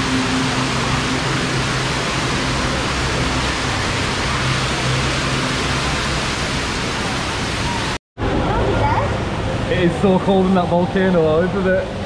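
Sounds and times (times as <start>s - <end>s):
rushing spraying water: 0.0s - 8.0s.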